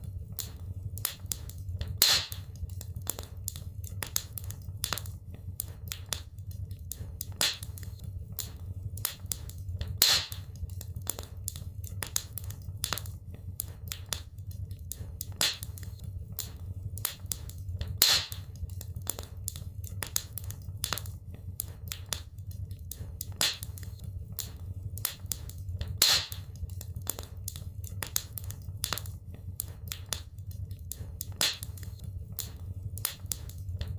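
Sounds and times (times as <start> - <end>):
low steady rumble: 0.0 - 33.9
wood fire crackling: 0.0 - 33.9
loud fire pop: 2.0 - 2.4, 10.0 - 10.4, 18.0 - 18.4, 26.0 - 26.4.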